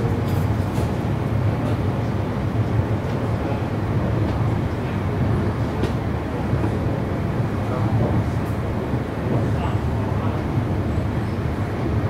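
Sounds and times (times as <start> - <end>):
train interior rumble: 0.0 - 12.0.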